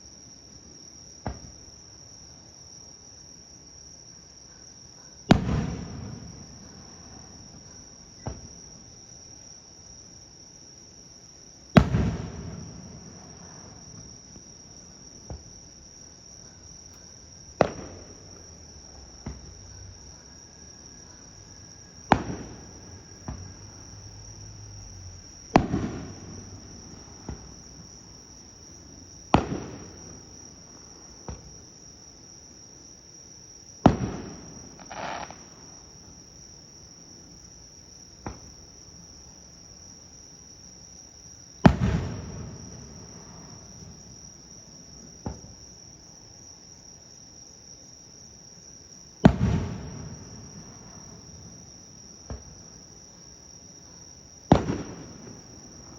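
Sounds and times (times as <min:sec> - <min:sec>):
crickets chirring: 0:00.0 - 0:55.9
faint firework cracks: 0:05.3 - 0:06.7, 0:11.8 - 0:13.2, 0:17.6 - 0:18.4, 0:22.1 - 0:23.5, 0:25.5 - 0:27.6, 0:29.3 - 0:30.5, 0:33.8 - 0:35.8, 0:41.6 - 0:43.5, 0:49.2 - 0:50.7, 0:54.5 - 0:55.6
firework shells booming: 0:05.3 - 0:07.6, 0:11.7 - 0:14.1, 0:17.5 - 0:19.5, 0:22.0 - 0:23.7, 0:25.5 - 0:31.6, 0:33.8 - 0:36.2, 0:41.6 - 0:44.1, 0:49.2 - 0:51.4, 0:54.5 - 0:55.9.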